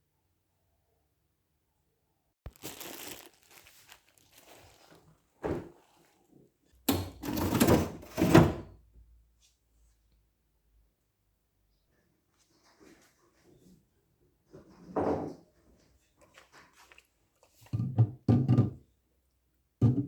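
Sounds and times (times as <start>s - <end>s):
rustling: 2.5s - 6.2s.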